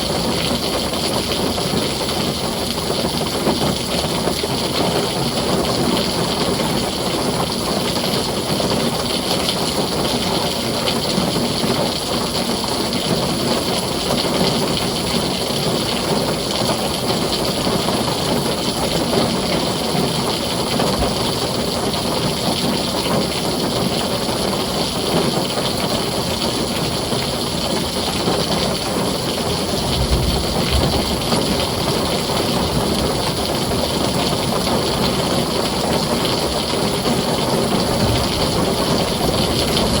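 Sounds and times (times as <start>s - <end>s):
heavy rain on a tin roof: 0.0s - 40.0s
low rumble: 29.6s - 33.3s.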